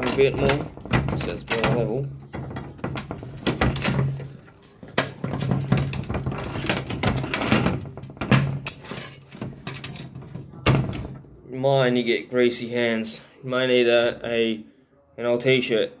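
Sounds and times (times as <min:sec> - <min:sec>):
metal parts clicking and rattling: 0:00.0 - 0:11.0.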